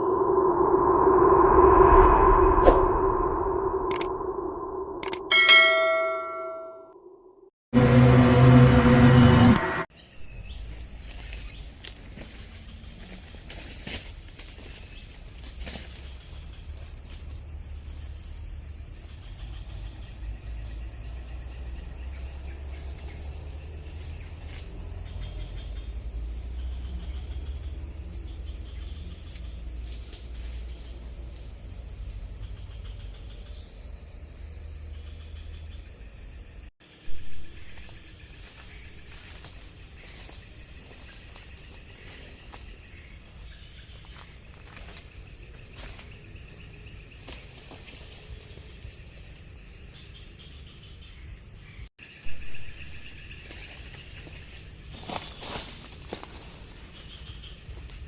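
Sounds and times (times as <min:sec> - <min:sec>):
low rumble: 0:00.0 - 0:05.3, 0:06.6 - 0:09.9
insect chirping: 0:00.0 - 0:06.1, 0:09.9 - 0:58.0
forest insects buzzing: 0:09.9 - 0:58.0.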